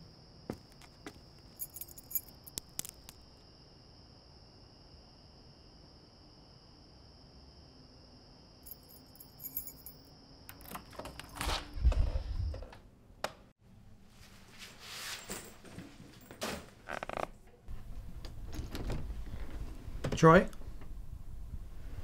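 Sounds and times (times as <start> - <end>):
keys jingling: 0.8 - 3.1, 8.7 - 11.5.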